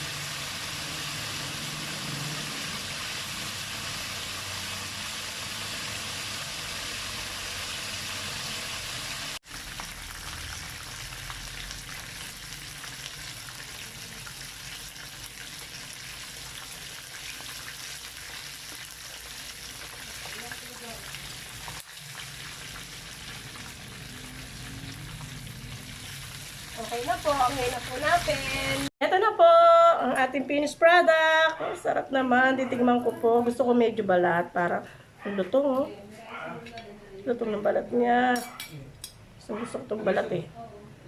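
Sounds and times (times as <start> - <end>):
chicken frying in hot oil: 0.0 - 28.9.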